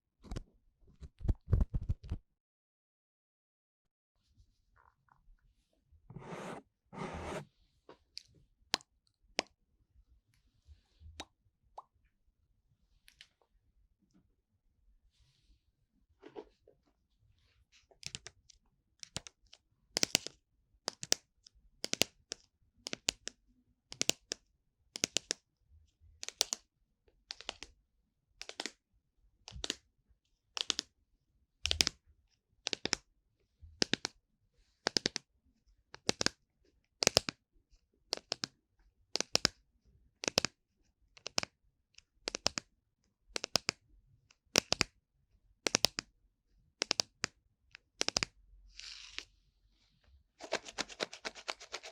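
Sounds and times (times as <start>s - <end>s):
scratching rubs on microphone ear: 0.9s - 2.2s, 6.1s - 7.5s, 50.4s - 51.9s.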